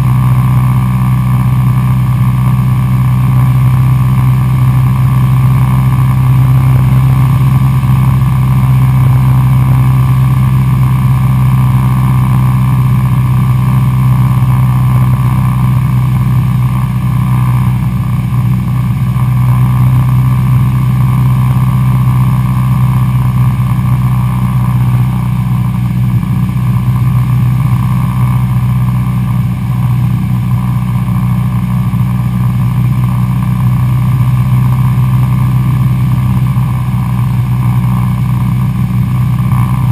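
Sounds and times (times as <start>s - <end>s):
propeller aircraft engine droning: 0.0s - 39.9s.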